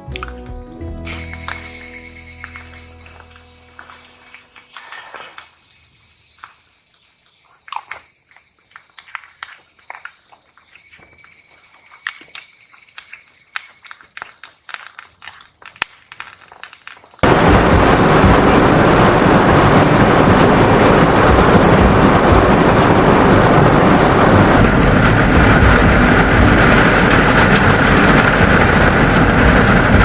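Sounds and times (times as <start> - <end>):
high-pitched insect chorus: 0.0 - 17.2.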